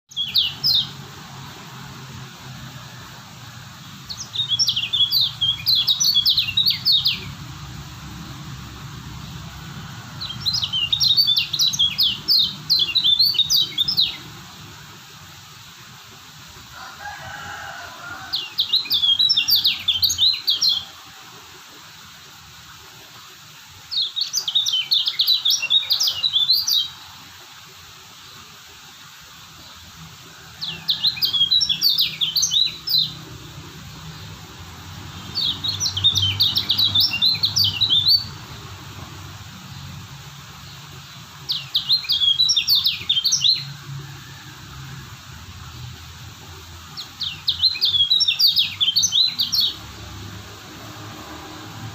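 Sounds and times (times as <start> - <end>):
bird singing high chattering notes: 0.1 - 1.1, 3.8 - 14.6, 18.4 - 21.0, 24.0 - 27.0, 30.6 - 34.4, 35.0 - 38.7, 40.6 - 43.8, 46.9 - 49.9.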